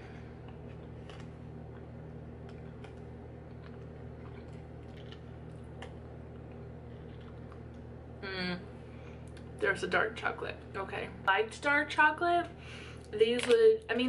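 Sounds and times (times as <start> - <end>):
low electrical hum: 0.0 - 14.0
chewing mouth clicks: 2.4 - 7.8.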